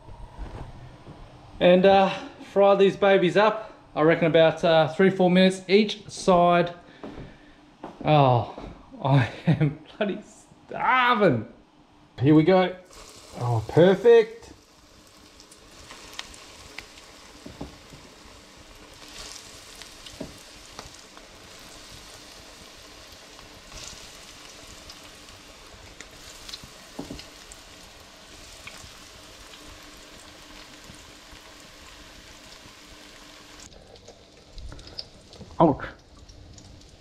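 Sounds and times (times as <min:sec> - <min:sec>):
fish cakes sizzling in oil: 0:12.9 - 0:37.0
oil crackling and popping: 0:12.9 - 0:37.0.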